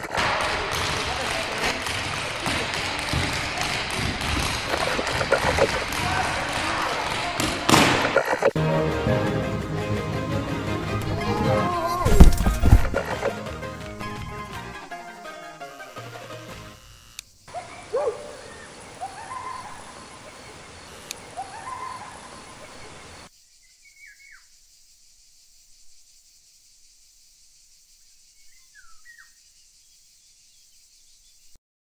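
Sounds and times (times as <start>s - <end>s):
steady hiss: 15.6s - 31.6s
curved animal calls: 17.5s - 24.5s.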